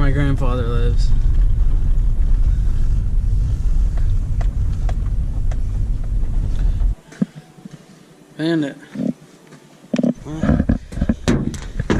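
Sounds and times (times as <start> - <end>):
truck engine and road rumble: 0.0 - 7.0.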